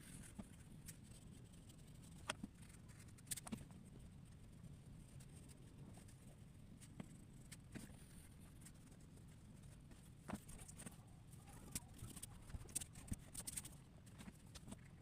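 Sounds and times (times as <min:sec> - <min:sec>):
drawing on paper: 0:00.0 - 0:14.8.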